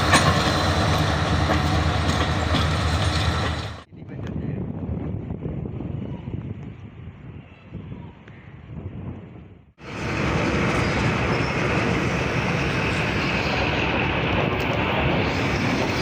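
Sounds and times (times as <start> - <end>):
passenger train passing: 0.0 - 3.9, 9.8 - 16.0.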